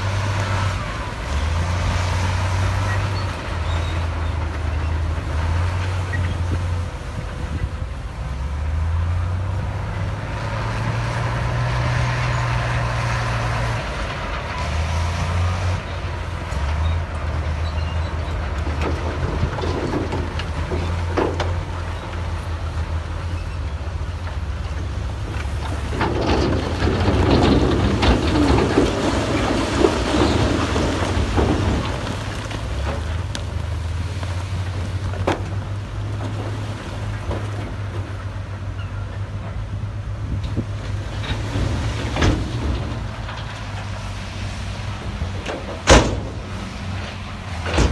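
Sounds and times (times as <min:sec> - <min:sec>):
diesel engine running: 0:00.0 - 0:47.9
rough grinding and scraping: 0:08.7 - 0:38.8, 0:40.4 - 0:47.9.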